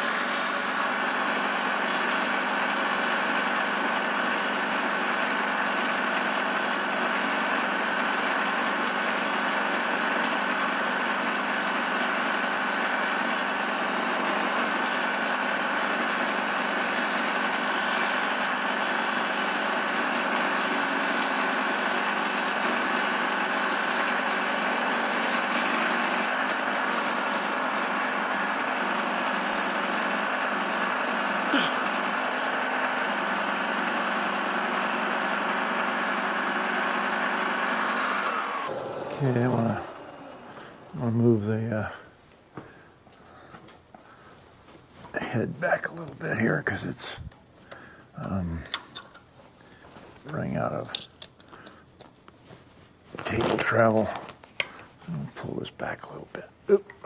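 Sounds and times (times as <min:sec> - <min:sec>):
milling machine cutting metal: 0:00.0 - 0:41.5.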